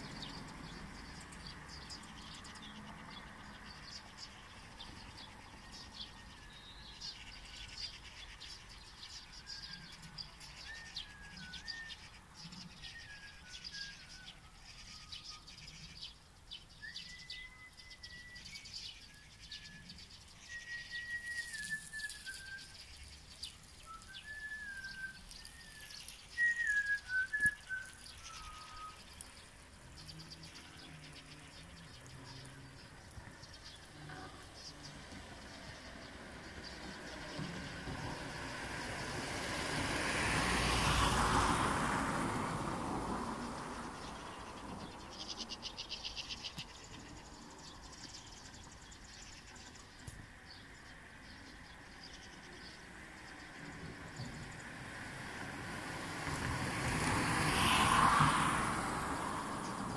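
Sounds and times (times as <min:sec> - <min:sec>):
bird whistling song: 0:05.8 - 0:32.5
high bird chirps: 0:16.7 - 0:35.0.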